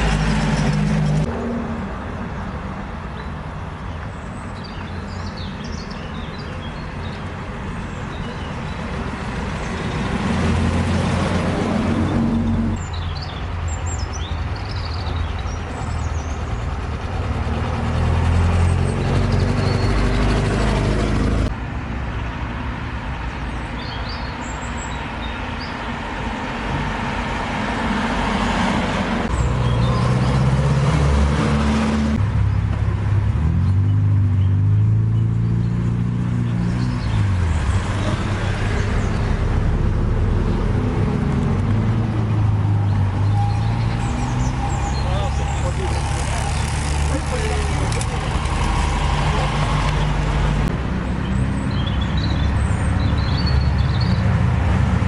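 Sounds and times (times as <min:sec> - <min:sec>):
classic vehicle engines running: 0:07.2 - 0:21.5, 0:29.2 - 0:55.0
bird chirps: 0:42.9 - 0:47.3.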